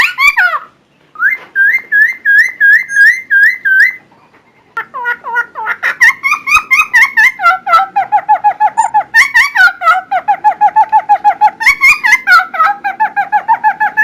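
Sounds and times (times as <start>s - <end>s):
songbird whistling rapidly: 1.2s - 4.0s, 8.3s - 9.8s.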